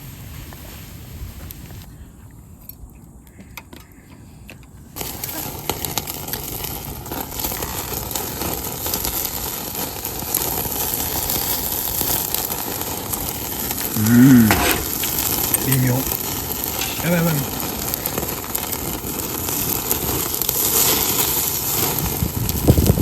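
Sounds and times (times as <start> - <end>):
food sizzling: 5.0 - 23.0.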